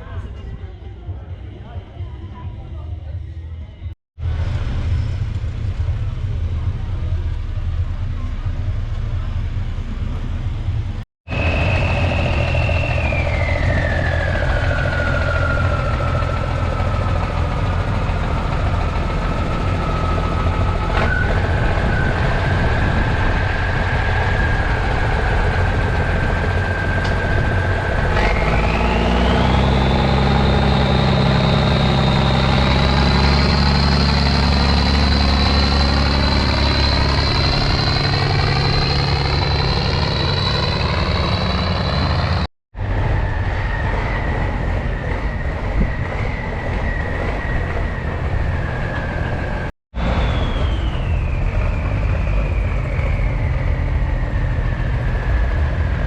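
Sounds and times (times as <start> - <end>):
whine sliding in pitch: 4.2 - 56.0
old engine idling: 5.3 - 42.5.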